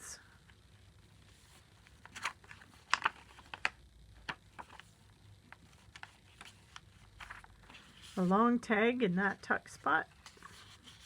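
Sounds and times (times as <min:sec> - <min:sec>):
paper pages rustling: 0:01.1 - 0:08.4, 0:10.0 - 0:11.0.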